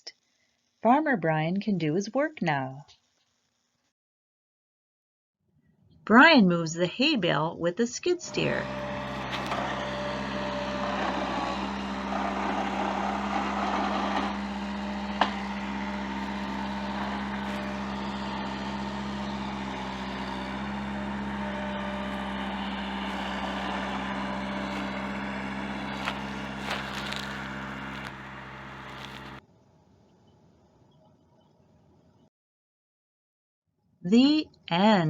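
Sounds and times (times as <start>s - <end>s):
skid steer loader engine running: 8.3s - 29.4s.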